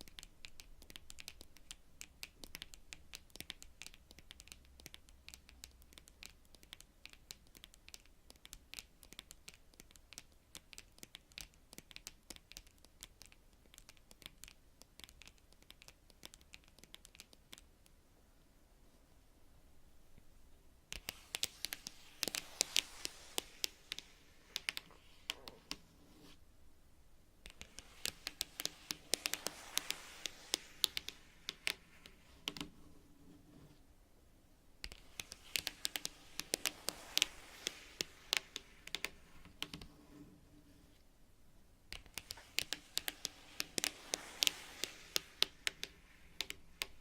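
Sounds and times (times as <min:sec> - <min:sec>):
fingernails tapping on cards: 0:20.9 - 0:25.8, 0:27.4 - 0:32.8, 0:34.8 - 0:39.9, 0:41.9 - 0:47.0.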